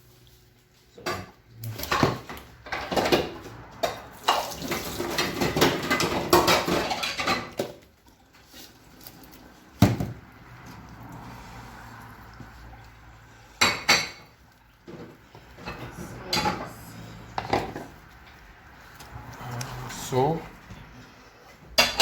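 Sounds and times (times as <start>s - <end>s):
pots and dishes clattering: 0.9s - 7.9s, 13.5s - 18.1s, 21.6s - 22.0s.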